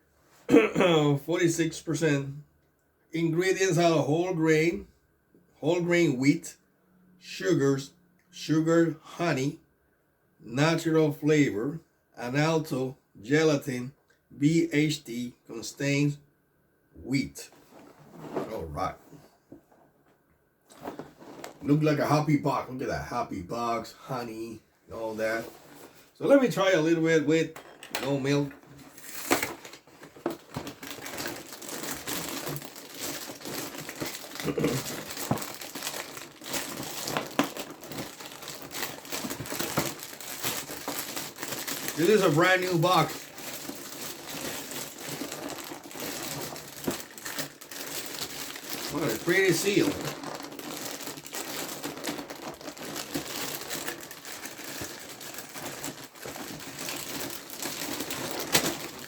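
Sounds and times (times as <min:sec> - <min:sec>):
packaging crinkling: 0:27.7 - 0:59.0.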